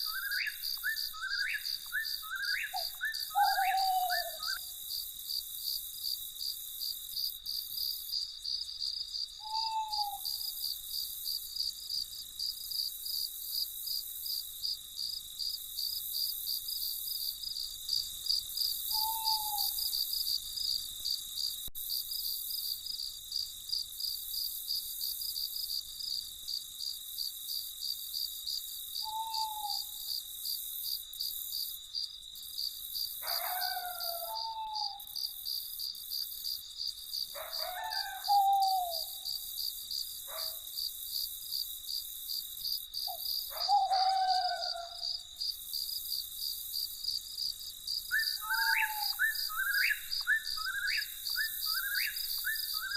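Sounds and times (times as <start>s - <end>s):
bird calling: 0.0s - 4.7s, 9.4s - 10.5s, 18.9s - 19.9s, 29.0s - 29.9s, 33.2s - 35.1s, 37.4s - 39.3s, 43.1s - 45.0s, 48.1s - 52.9s
crickets chirping: 0.0s - 52.9s.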